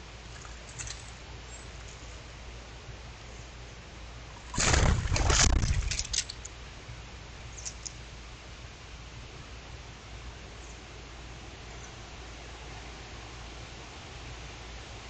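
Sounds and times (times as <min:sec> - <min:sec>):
bird wings flapping: 0:04.4 - 0:06.3.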